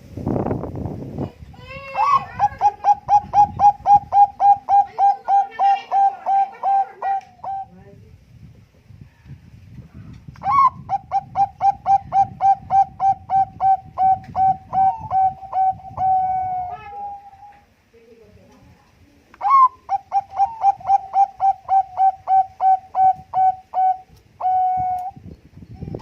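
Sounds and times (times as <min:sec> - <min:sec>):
dove cooing rapidly: 0:01.8 - 0:07.7, 0:10.4 - 0:17.6, 0:19.4 - 0:25.2.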